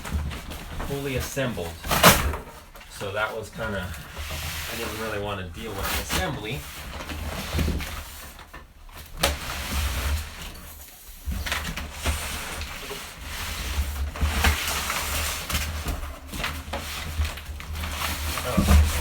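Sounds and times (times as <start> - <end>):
cardboard box scraping and rustling: 0.0 - 19.0
cardboard tearing: 11.4 - 19.0.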